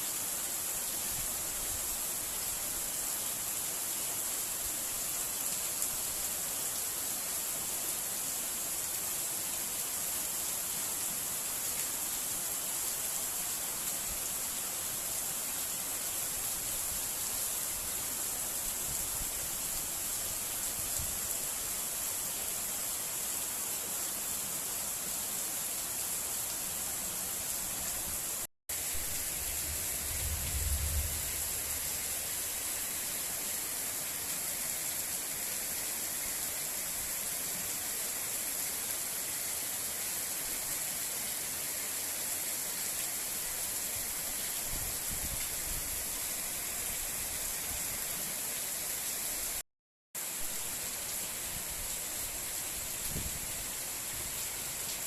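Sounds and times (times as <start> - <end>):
heavy rain pouring: 25.8 - 42.1
low rumble: 29.4 - 32.1.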